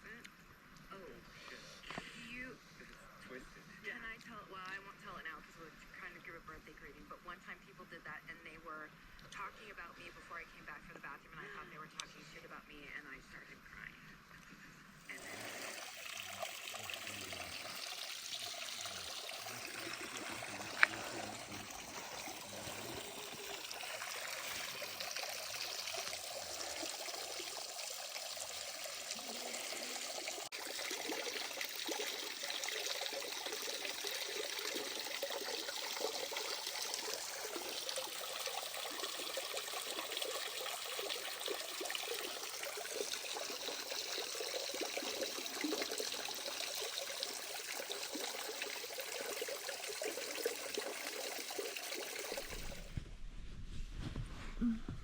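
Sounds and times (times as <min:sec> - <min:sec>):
water running and trickling: 0:15.1 - 0:53.0.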